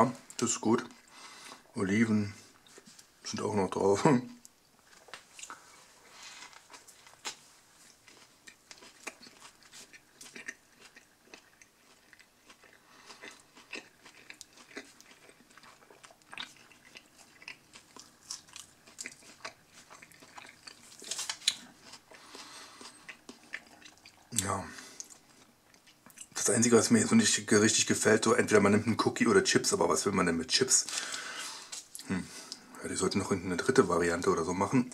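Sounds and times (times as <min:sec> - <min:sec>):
person chewing food: 0:02.4 - 0:03.3, 0:04.8 - 0:26.4.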